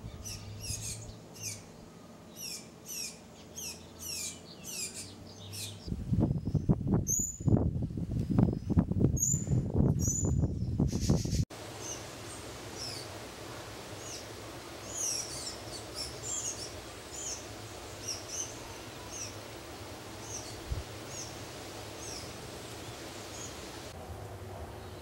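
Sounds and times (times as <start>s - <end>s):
small bird chirping: 2.4s - 7.5s.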